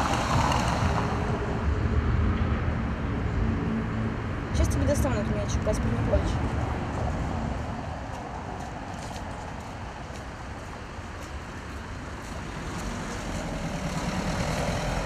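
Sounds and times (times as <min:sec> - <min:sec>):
passing cars rumble: 0:00.0 - 0:15.0.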